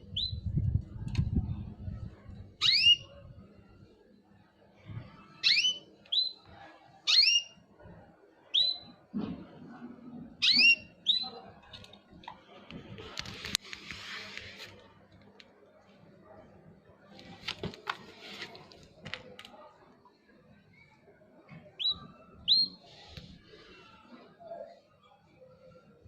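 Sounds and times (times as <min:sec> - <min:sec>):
bird whistled calls: 0:02.6 - 0:03.0, 0:10.4 - 0:11.3, 0:21.8 - 0:22.8.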